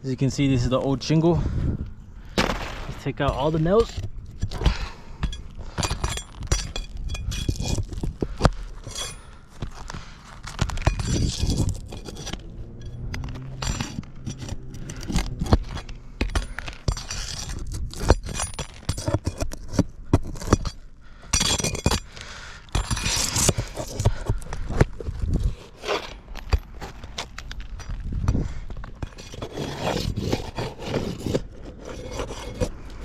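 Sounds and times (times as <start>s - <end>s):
shingles cracking: 2.3s - 12.3s
metal tool scraping shingles: 2.3s - 24.4s, 25.0s - 28.0s, 29.0s - 33.0s.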